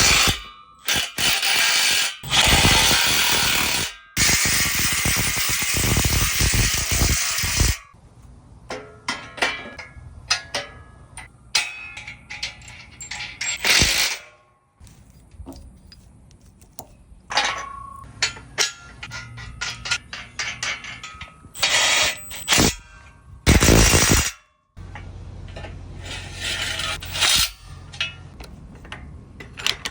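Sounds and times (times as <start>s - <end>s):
metallic clanks of tools: 8.7s - 29.9s.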